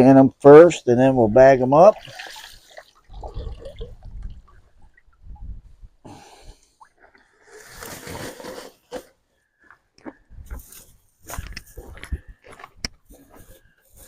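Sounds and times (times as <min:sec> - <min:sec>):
dripping water: 0:01.9 - 0:05.4.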